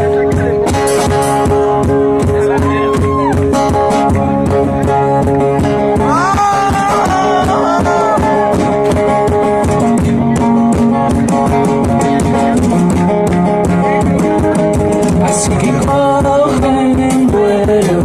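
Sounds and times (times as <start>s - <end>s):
bending lead guitar notes: 0.0s - 18.0s
percussion beat: 0.0s - 18.0s
guitar playing sustained chords: 3.4s - 16.9s.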